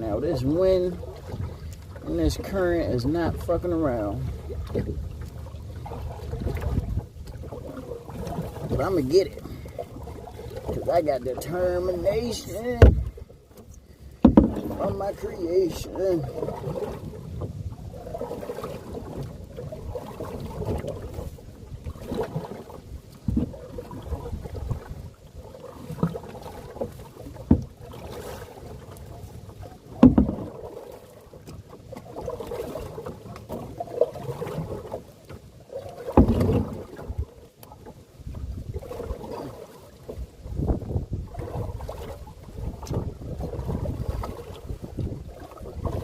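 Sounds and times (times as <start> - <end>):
canoe paddle strokes in water: 0.0 - 46.0
sharp knocks: 12.8 - 13.1.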